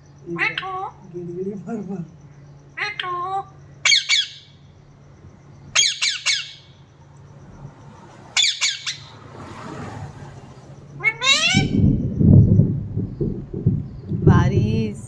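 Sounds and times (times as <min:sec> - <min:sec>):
parrot squawking: 0:00.3 - 0:01.2, 0:02.8 - 0:04.6, 0:05.7 - 0:06.8, 0:08.4 - 0:09.2, 0:11.0 - 0:11.8.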